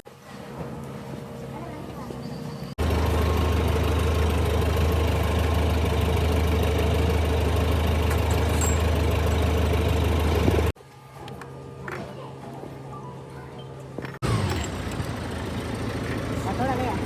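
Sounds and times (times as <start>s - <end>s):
machine engine running steadily: 2.8s - 10.8s, 14.2s - 17.0s.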